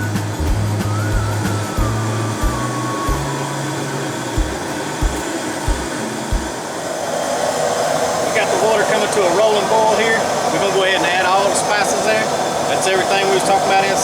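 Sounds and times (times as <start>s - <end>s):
music with bass beat: 0.0s - 6.6s
fire roaring: 0.0s - 14.0s
water boiling: 0.0s - 14.0s.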